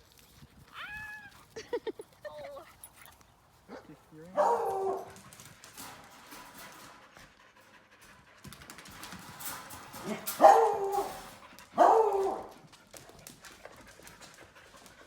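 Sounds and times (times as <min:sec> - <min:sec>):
puppies barking: 0:03.7 - 0:05.2, 0:10.0 - 0:12.7.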